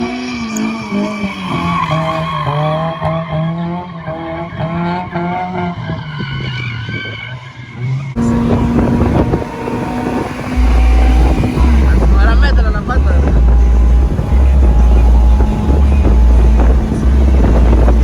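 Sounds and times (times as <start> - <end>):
car tires squealing and skidding: 0.0 - 18.0
car engine running: 8.2 - 18.0
wind noise: 8.2 - 18.0.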